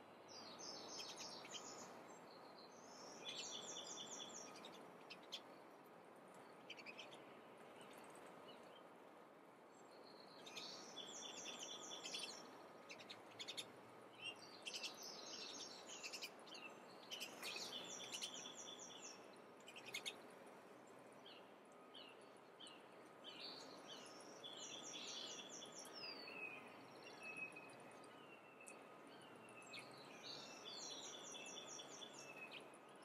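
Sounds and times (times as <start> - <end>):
songbirds singing: 0.0 - 9.0, 9.7 - 33.0
background hiss: 0.0 - 33.0.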